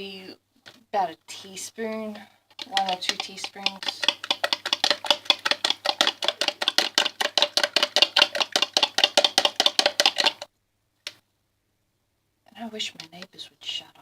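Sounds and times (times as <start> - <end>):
fork whisking eggs in a bowl: 2.5 - 10.5.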